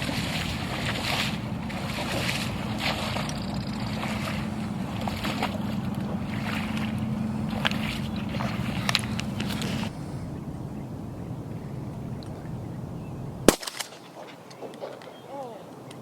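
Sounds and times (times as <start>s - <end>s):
water swishing: 0.0s - 10.4s
low motor hum: 0.0s - 13.6s.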